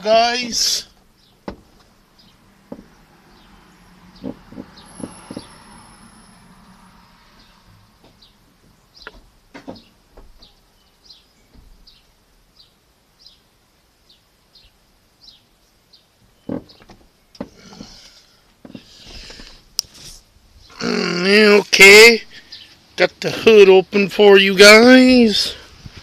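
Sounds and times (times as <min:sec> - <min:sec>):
knocks and thumps: 0:01.0 - 0:02.0, 0:02.6 - 0:03.5, 0:04.1 - 0:05.7, 0:08.0 - 0:10.6, 0:16.4 - 0:18.0, 0:18.6 - 0:19.6
bird chirping falling notes: 0:02.2 - 0:06.3.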